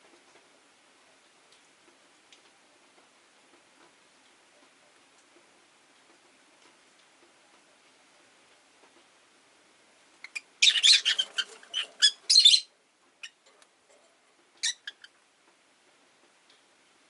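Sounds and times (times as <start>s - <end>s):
lovebirds chirping harshly: 10.2s - 13.4s.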